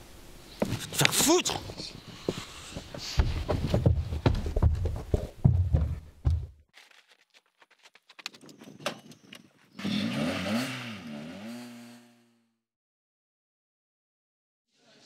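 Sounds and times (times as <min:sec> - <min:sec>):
car engine revving: 0:09.8 - 0:12.4.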